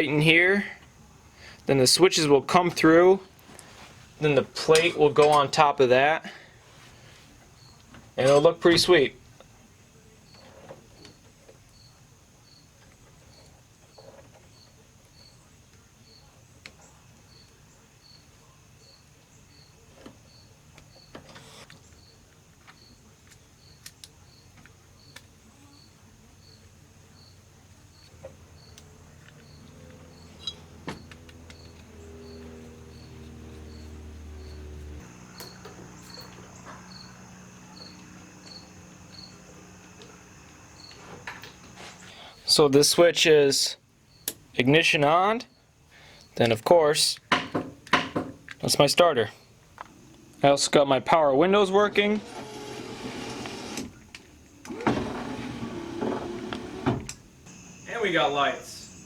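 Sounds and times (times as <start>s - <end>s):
cricket chirping: 7.4s - 7.9s, 10.2s - 42.4s, 43.8s - 44.5s, 45.4s - 46.4s, 57.3s - 59.0s.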